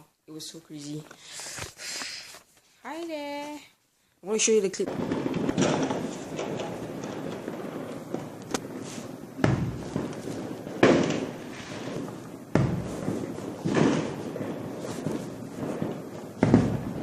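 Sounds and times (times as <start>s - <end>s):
fireworks bangs: 4.4s - 17.0s.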